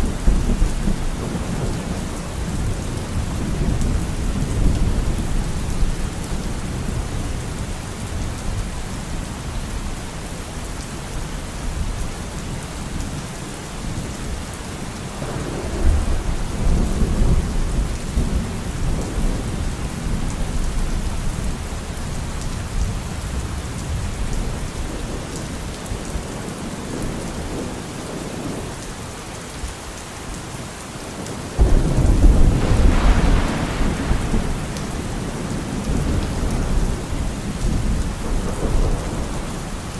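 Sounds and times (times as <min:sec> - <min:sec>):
thunder rumbling: 0:00.0 - 0:08.3, 0:15.1 - 0:25.3, 0:31.6 - 0:39.9
steady rain falling: 0:00.0 - 0:39.9.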